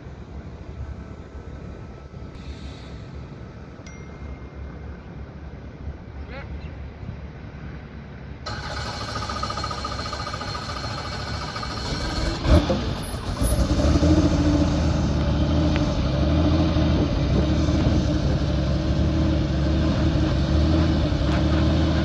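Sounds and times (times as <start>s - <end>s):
helicopter engine whining: 8.5s - 18.8s.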